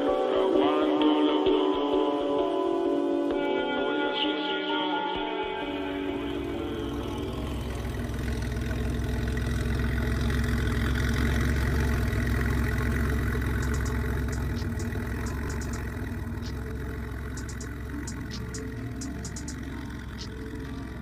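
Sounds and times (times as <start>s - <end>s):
car engine running at low revs: 5.6s - 21.0s.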